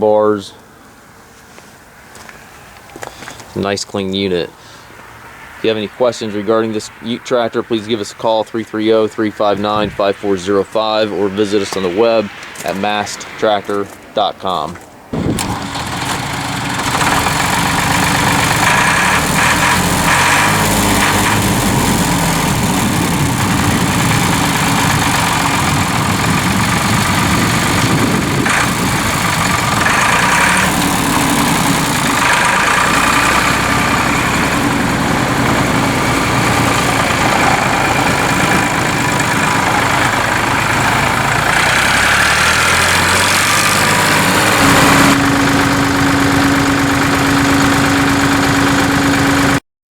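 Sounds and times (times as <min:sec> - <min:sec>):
tractor diesel engine idling: 0:15.2 - 0:49.6.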